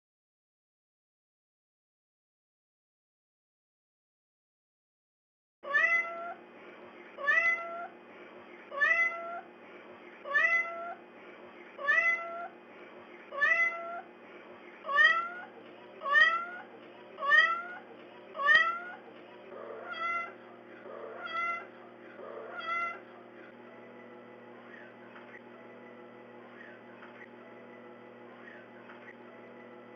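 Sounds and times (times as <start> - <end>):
cat meowing: 5.6 - 6.4, 7.2 - 7.9, 8.7 - 9.5, 10.2 - 11.0, 11.8 - 12.5, 13.3 - 14.1, 14.8 - 19.0, 19.6 - 20.4, 21.0 - 23.0.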